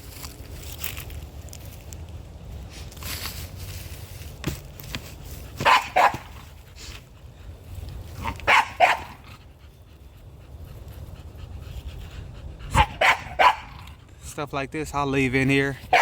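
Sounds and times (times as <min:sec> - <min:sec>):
dog barking: 0:05.6 - 0:06.4, 0:08.2 - 0:09.2, 0:12.7 - 0:13.8.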